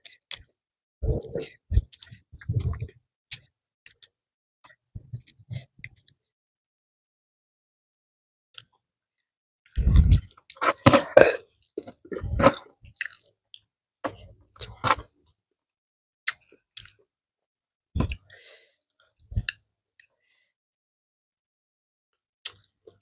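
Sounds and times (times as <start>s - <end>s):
person chewing food: 9.8s - 13.7s.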